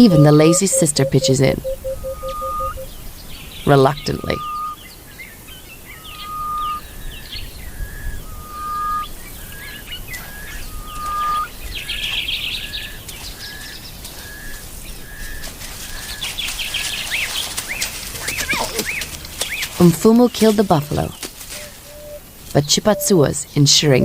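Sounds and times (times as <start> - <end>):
bird whistles: 0.0 - 3.0, 3.7 - 4.8, 5.9 - 12.0
short evenly spaced bird notes: 0.0 - 15.2
bird chirps: 0.0 - 23.2.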